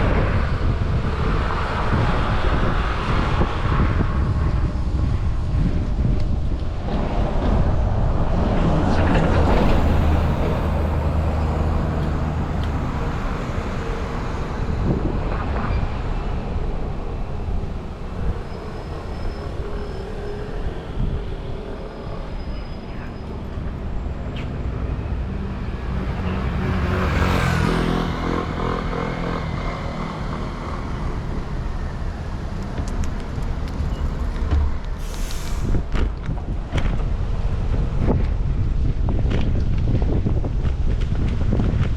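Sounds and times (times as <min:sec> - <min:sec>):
road traffic: 0:00.0 - 0:41.9
vehicle passing close by: 0:06.9 - 0:34.9.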